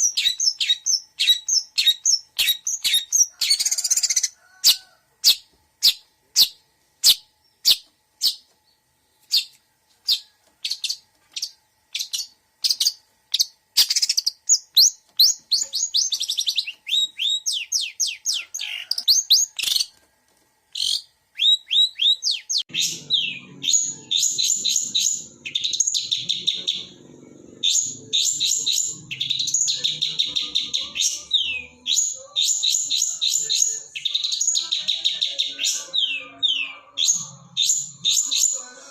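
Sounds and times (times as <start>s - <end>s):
shrike singing chattering warble: 20.7s - 38.9s.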